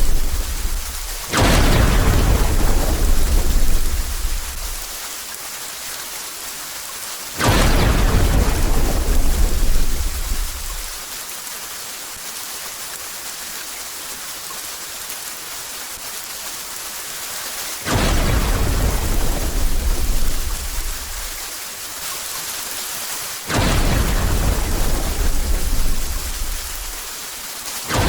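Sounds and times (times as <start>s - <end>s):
thunderclap rumbling: 0.0s - 5.0s, 7.4s - 11.0s, 17.9s - 21.4s, 23.5s - 27.1s
rain hiss: 0.0s - 28.0s.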